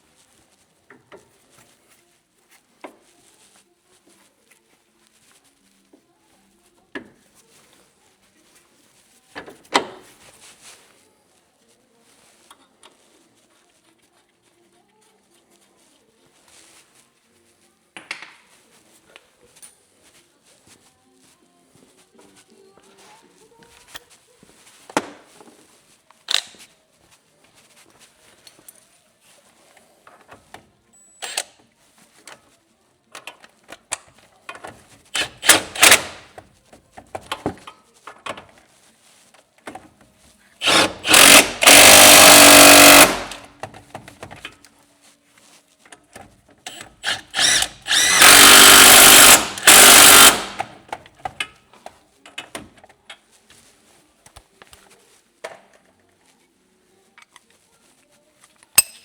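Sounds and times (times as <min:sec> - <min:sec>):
metal parts knocking and clicking: 0:35.2 - 0:36.2, 0:40.6 - 0:43.5, 0:46.7 - 0:50.8
handheld power tool running: 0:35.2 - 0:36.3, 0:40.6 - 0:43.5, 0:46.7 - 0:50.8.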